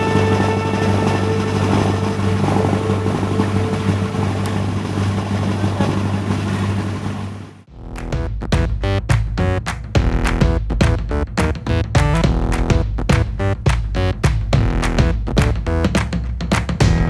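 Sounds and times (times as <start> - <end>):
rushing water noise: 0.0 - 7.7
boat engine humming: 0.0 - 16.1.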